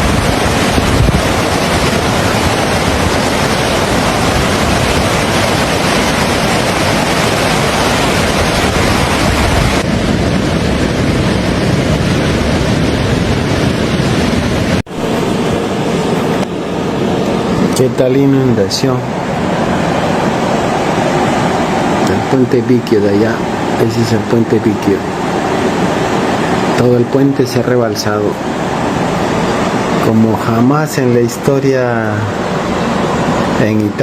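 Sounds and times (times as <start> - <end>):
rushing floodwater: 0.0 - 9.9, 10.9 - 34.0.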